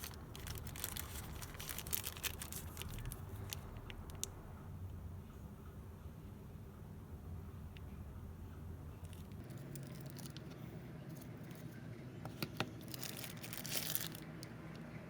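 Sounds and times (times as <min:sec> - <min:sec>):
packaging crinkling: 0:00.0 - 0:04.3, 0:09.1 - 0:11.6, 0:12.4 - 0:14.5.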